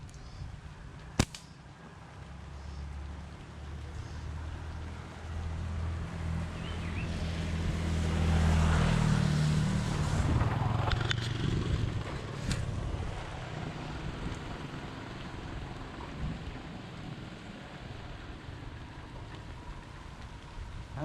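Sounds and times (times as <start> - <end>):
sharp clicks: 1.1 - 1.6
vehicle engine passing by: 2.4 - 20.1.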